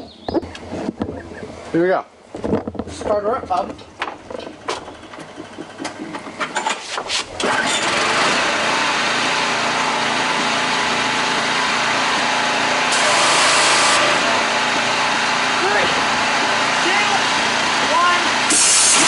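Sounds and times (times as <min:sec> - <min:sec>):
clicks and knocks of starting: 0:03.5 - 0:08.3
pressure washer engine running: 0:07.3 - 0:19.0
bright hiss: 0:18.5 - 0:19.0.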